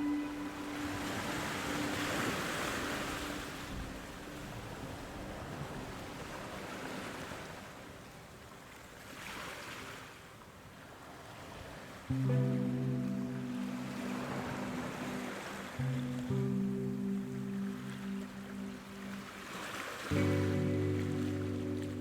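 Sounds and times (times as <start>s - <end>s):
background music: 0.0s - 4.2s, 12.1s - 22.0s.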